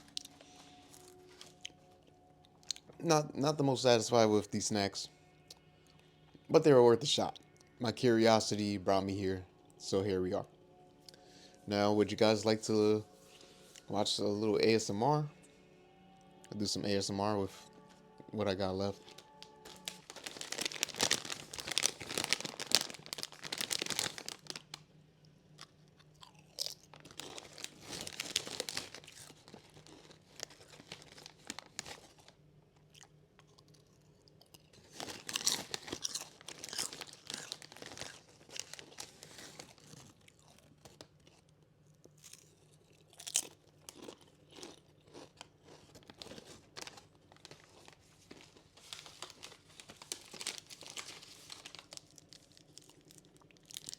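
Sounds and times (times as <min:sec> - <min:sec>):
person chewing crunchy snacks: 0:00.0 - 0:02.9, 0:19.0 - 0:24.8, 0:25.5 - 0:53.9.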